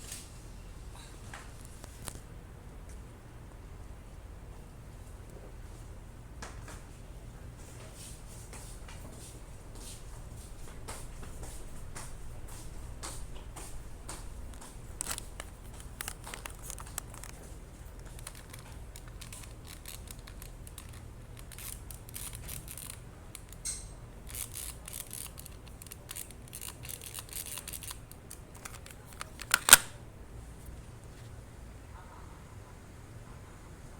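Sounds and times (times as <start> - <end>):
small clicks and scrapes: 14.1 - 30.0.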